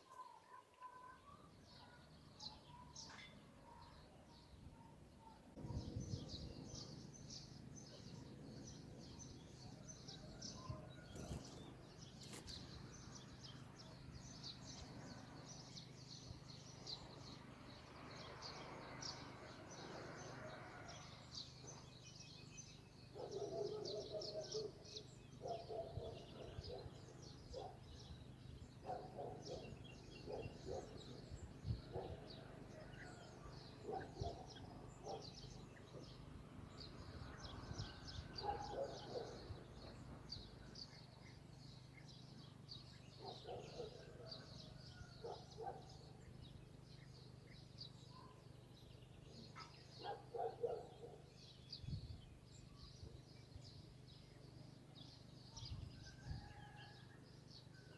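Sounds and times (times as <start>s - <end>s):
birds chirping: 21.3s - 36.1s, 37.3s - 55.3s.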